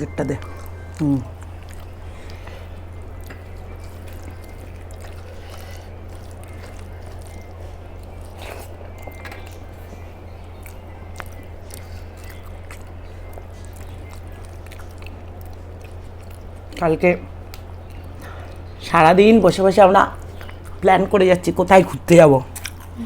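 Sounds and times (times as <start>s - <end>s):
steady low hum: 0.0s - 23.0s
wet squishy eating noises: 0.0s - 23.0s.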